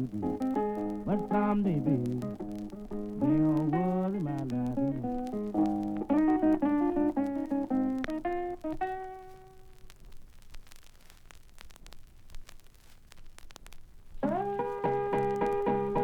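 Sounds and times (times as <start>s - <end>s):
blues guitar playing: 0.0s - 9.8s, 14.2s - 16.0s
vinyl crackle and clicks: 0.0s - 16.0s.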